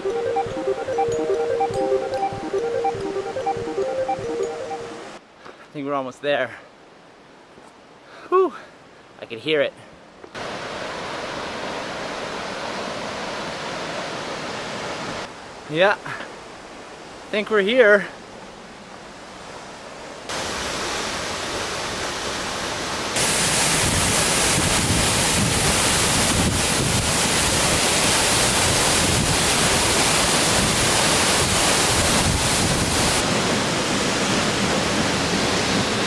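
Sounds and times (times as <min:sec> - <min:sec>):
waterfall rushing: 0:00.0 - 0:05.2, 0:20.3 - 0:36.0.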